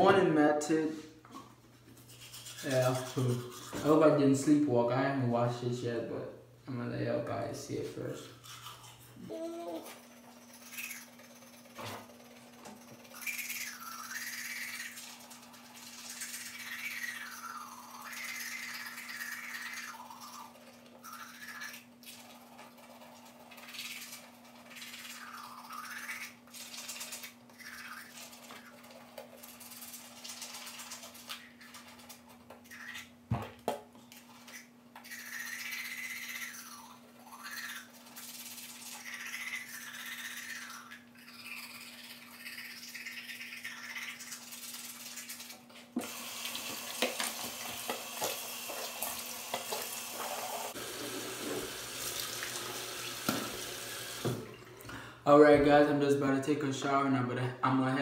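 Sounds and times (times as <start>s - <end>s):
toothbrush scrubbing teeth: 1.8s - 4.4s, 8.1s - 33.1s, 34.0s - 54.2s
sink tap running water: 46.0s - 54.8s.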